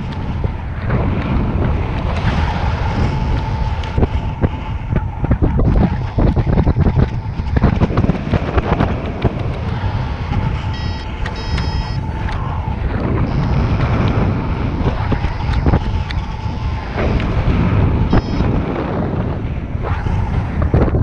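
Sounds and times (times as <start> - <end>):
strong wind buffeting microphone: 0.0 - 21.0
faint steady tone: 10.6 - 13.8, 18.1 - 18.6
short electronic beeps: 10.7 - 12.0, 13.3 - 13.6, 18.1 - 18.5.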